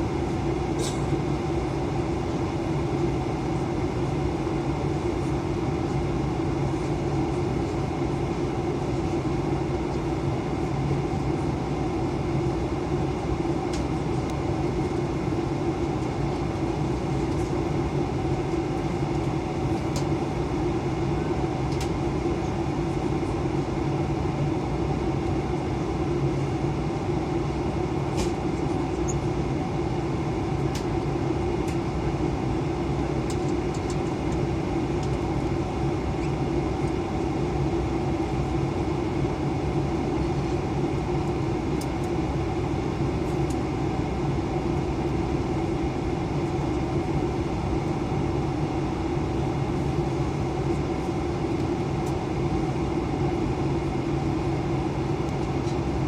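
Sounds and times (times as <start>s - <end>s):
airplane cabin engine drone: 0.0s - 56.0s.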